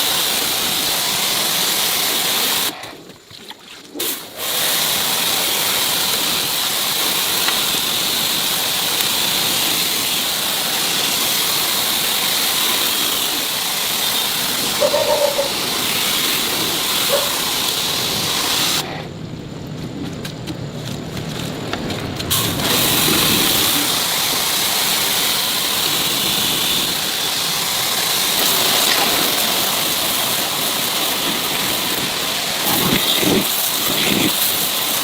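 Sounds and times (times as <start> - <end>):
pressurised air jet hissing: 0.0 - 2.8, 4.0 - 19.1, 22.3 - 35.0
short squeak: 14.8 - 15.6.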